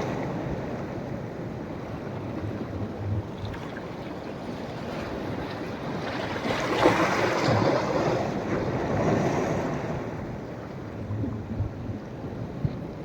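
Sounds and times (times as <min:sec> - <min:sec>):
sea waves breaking on beach: 0:03.4 - 0:10.6.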